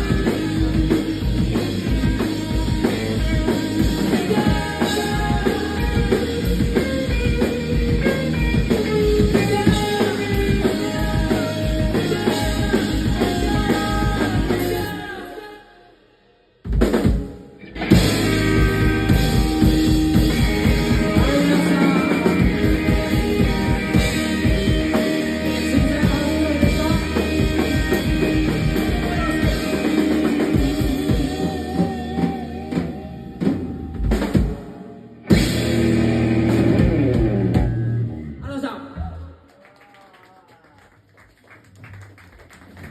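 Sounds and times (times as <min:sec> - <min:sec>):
drum kit: 0:00.0 - 0:15.5, 0:16.3 - 0:38.4
live rock band playing: 0:00.0 - 0:15.6, 0:16.6 - 0:38.7
person singing: 0:00.0 - 0:16.0, 0:18.1 - 0:33.8.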